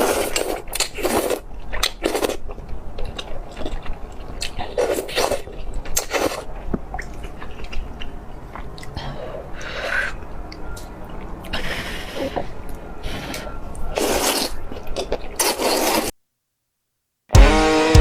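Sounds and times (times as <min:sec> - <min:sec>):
person chewing crunchy food: 0:00.0 - 0:09.0, 0:13.9 - 0:16.1.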